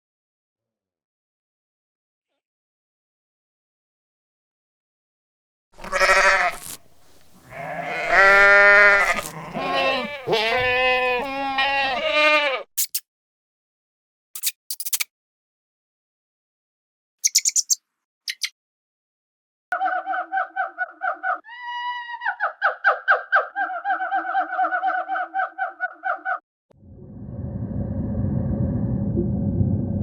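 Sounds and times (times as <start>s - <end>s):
animal bleating cries: 5.8s - 12.7s
short high clicks: 12.8s - 13.0s, 14.4s - 15.1s.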